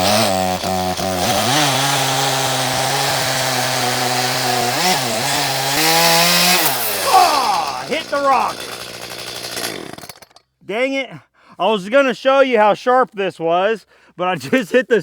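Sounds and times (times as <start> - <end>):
chainsaw cutting: 0.0 - 10.6.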